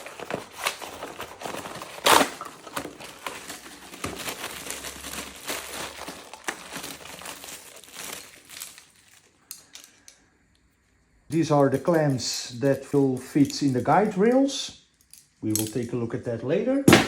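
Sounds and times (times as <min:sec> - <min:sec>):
cardboard packaging crinkling: 0:00.0 - 0:09.4.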